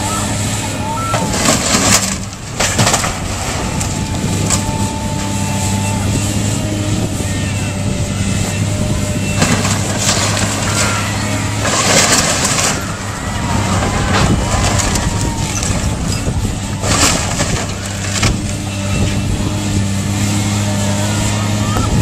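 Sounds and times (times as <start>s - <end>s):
diesel demolition machinery running: 0.0s - 22.0s
debris crunching and crashing: 1.0s - 7.0s, 7.8s - 20.9s.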